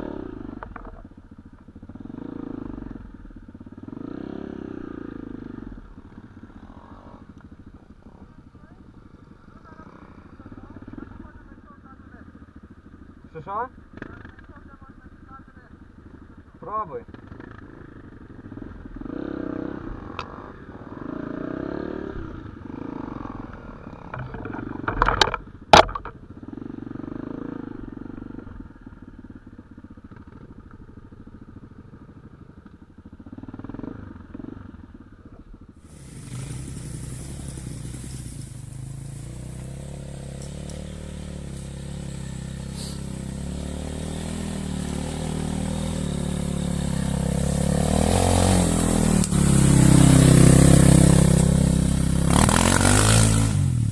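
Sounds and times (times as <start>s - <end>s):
dirt bike engine running: 0.0s - 53.9s
muffled uneven low sound: 22.0s - 26.5s
sharp knocks: 24.1s - 26.2s.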